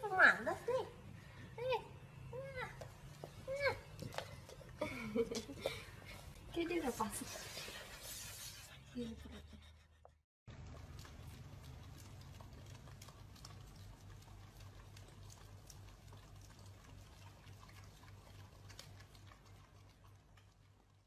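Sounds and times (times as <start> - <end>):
dogs licking ice cream: 2.1 - 8.5, 10.5 - 21.0.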